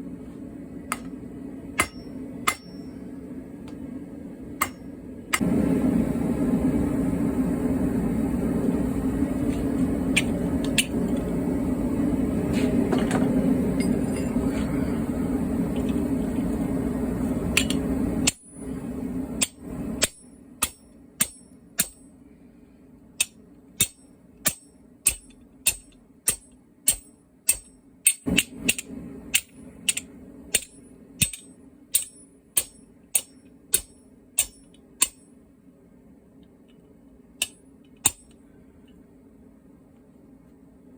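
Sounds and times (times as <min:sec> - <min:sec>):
steady mechanical noise: 0:00.0 - 0:40.9
hammer ringing on steel anvil: 0:01.8 - 0:03.1.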